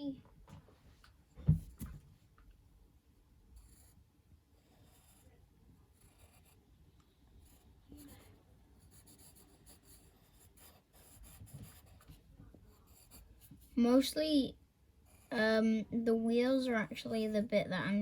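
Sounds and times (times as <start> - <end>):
pencil strokes scratching paper: 3.5 - 14.1, 15.0 - 15.5.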